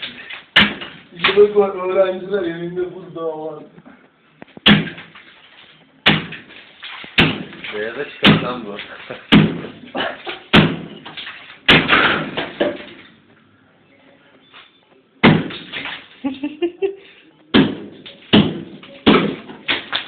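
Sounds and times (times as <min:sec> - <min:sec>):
knocking on freezer ice: 0:07.2 - 0:08.6.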